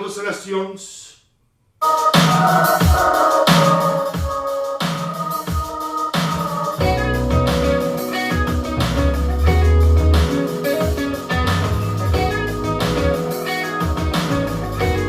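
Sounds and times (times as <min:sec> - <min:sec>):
guitar music over loudspeakers: 0:06.8 - 0:15.0.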